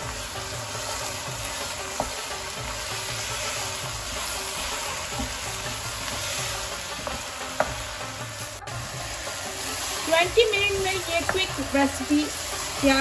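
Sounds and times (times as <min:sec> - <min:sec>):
food sizzling in a pot: 0:00.0 - 0:13.0
wooden spoon knocking pot: 0:11.1 - 0:11.6.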